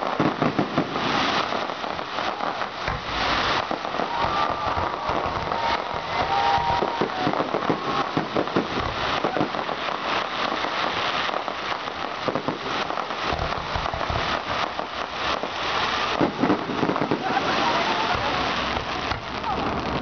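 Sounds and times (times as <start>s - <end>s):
firework whistle: 0.0s - 11.7s
fireworks bangs: 0.0s - 20.0s
fireworks crackling and popping: 0.0s - 20.0s.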